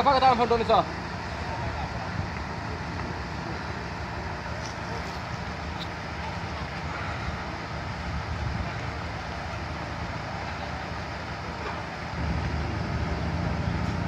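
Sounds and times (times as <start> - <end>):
engines rumbling: 0.0 - 14.0.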